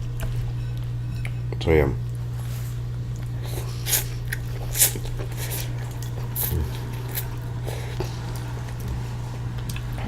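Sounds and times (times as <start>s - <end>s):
steady low hum: 0.0s - 10.0s
person chewing: 3.0s - 10.0s.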